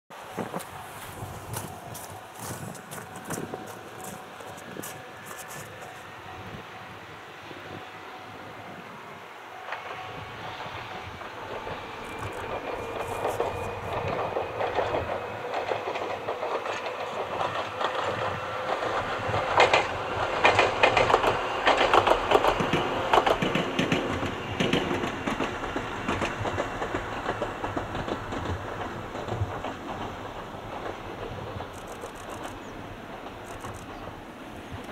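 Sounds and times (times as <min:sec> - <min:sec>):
electric train whine: 0:00.1 - 0:34.9
wheels clattering over rail joints: 0:11.2 - 0:34.9.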